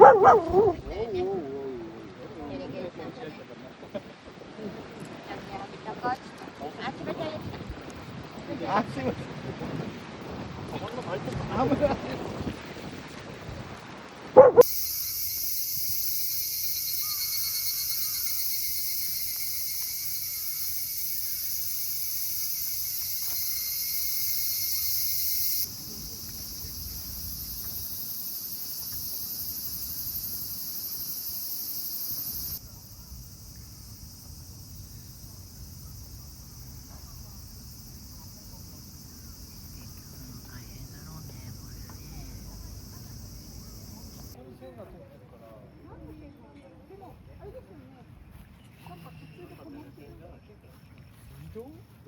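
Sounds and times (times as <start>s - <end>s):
insects singing: 0.0s - 0.8s, 14.4s - 44.4s.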